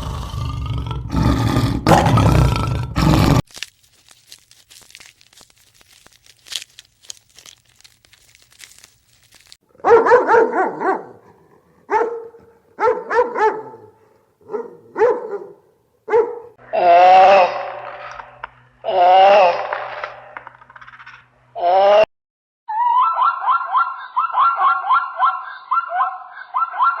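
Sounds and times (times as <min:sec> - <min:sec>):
dog barking: 0:09.8 - 0:16.6, 0:23.0 - 0:27.0.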